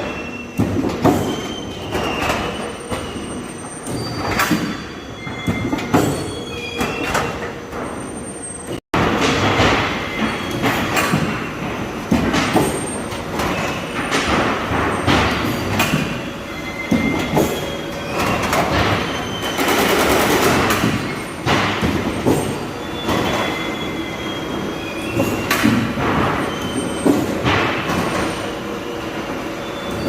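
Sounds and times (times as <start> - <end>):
machine clanks: 0.0 - 28.6
metal-on-metal squeals: 1.2 - 8.8, 16.5 - 20.0, 22.4 - 25.7.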